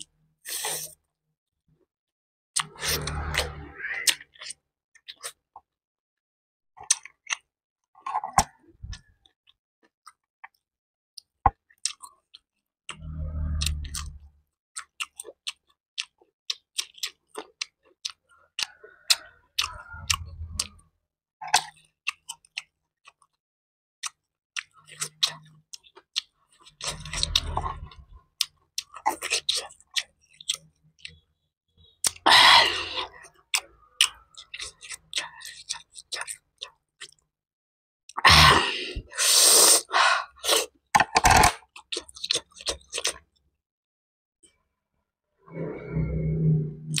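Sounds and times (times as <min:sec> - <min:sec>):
wet chewing: 0:14.8 - 0:20.8, 0:21.4 - 0:23.4, 0:24.0 - 0:31.2, 0:33.0 - 0:37.2, 0:40.4 - 0:43.3.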